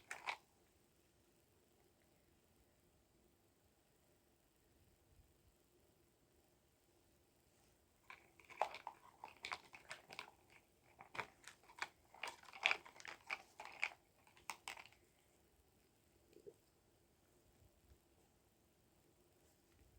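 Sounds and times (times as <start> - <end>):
small hard objects clicking and rattling: 0.0 - 0.4, 8.1 - 15.1.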